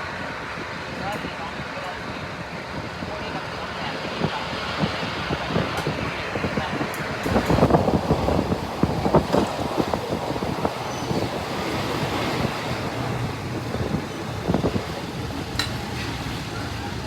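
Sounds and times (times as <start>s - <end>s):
train engine and wheels rumbling: 0.0s - 17.0s
wind rushing past: 4.0s - 16.5s.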